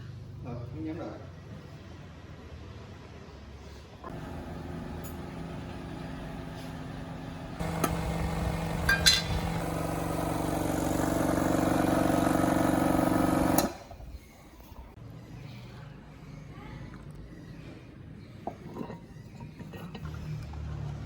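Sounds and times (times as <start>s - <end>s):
small engine running: 4.1s - 13.9s.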